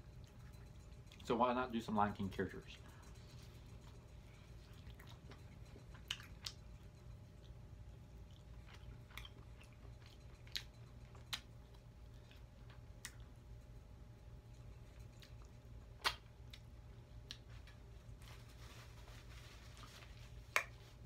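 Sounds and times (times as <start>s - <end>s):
low steady hum: 0.0s - 21.0s
chewing and biting: 3.1s - 13.8s.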